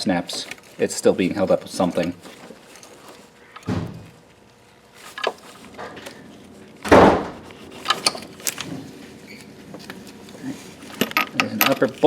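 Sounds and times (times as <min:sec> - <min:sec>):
metal tools knocking and clinking: 0:10.9 - 0:12.0.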